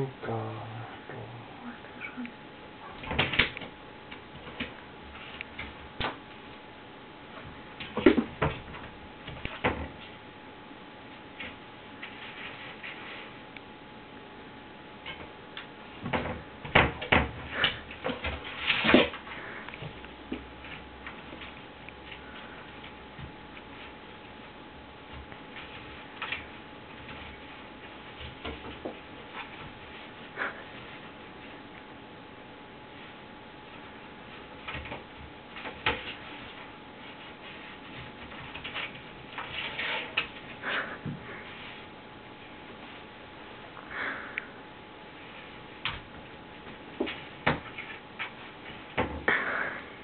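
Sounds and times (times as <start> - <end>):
cat scratching: 35.5 - 41.9.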